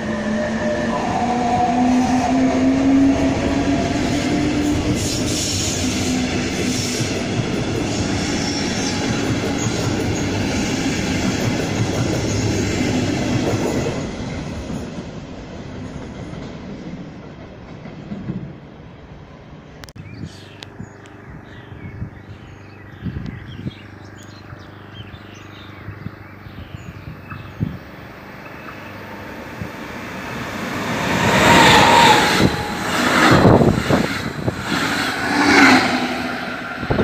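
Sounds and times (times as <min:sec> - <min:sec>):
train passing at speed: 0:00.0 - 0:19.9, 0:23.6 - 0:37.0
birds chirping: 0:20.0 - 0:34.0.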